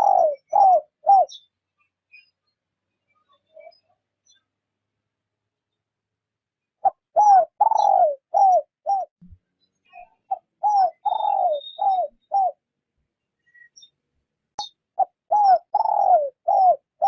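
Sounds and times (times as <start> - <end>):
dove cooing: 0.0 - 1.4, 6.8 - 9.1, 10.3 - 12.6, 15.0 - 17.0.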